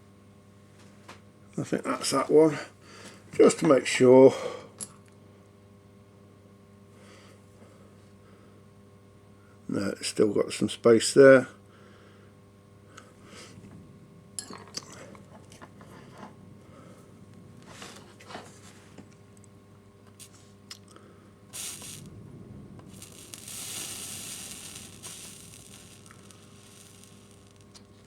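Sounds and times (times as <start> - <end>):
solder sizzling under iron: 15.0 - 20.7, 21.3 - 28.0.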